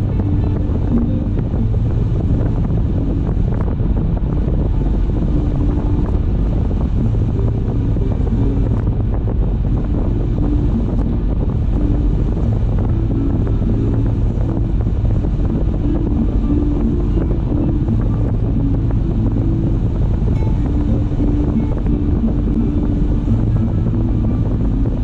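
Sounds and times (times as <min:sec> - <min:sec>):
car road rumble: 0:00.0 - 0:25.0
wind buffeting microphone: 0:00.0 - 0:25.0.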